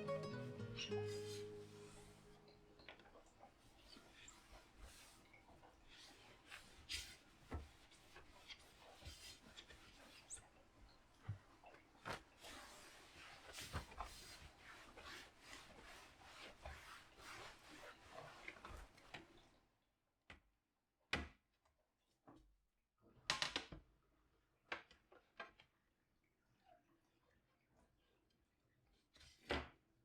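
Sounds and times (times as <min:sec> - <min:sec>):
soft rubbing and clatter: 0:02.8 - 0:19.6.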